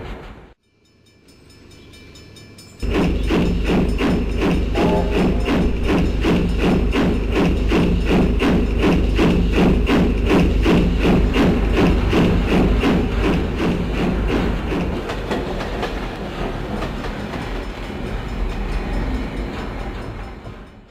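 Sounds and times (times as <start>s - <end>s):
steam locomotive exhaust beats: 0.0s - 20.9s
low rumble: 2.8s - 16.6s.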